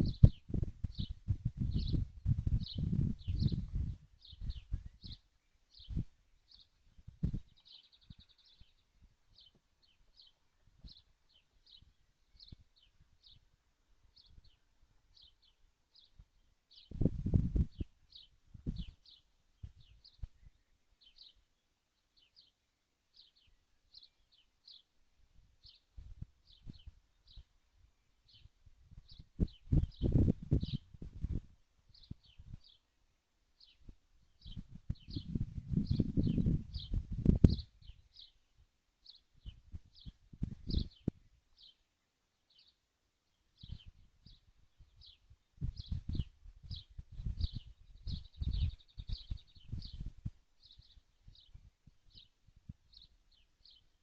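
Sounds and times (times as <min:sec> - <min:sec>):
soft low knocks and thumps: 0:00.0 - 0:05.2, 0:07.0 - 0:08.2, 0:33.9 - 0:37.7
bird chirping: 0:00.0 - 0:13.5, 0:14.1 - 0:25.0, 0:25.6 - 0:32.9, 0:33.6 - 0:54.0.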